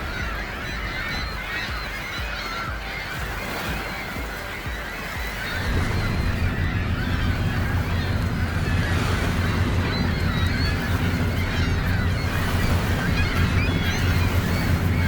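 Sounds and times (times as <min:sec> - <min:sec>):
birds honking: 0:00.0 - 0:15.0
steady low rumble: 0:05.4 - 0:15.0.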